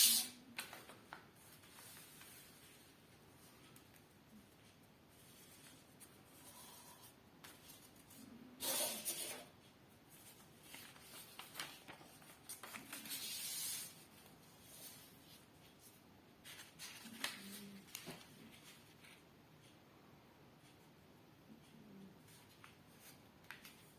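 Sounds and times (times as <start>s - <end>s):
paper rustling and crinkling: 0.6s - 4.0s, 10.2s - 19.2s.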